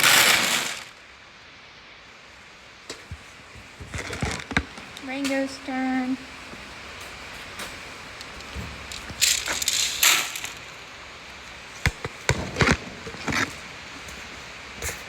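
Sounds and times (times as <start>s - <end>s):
grain pouring into feeder: 0.0s - 1.0s, 8.2s - 10.8s.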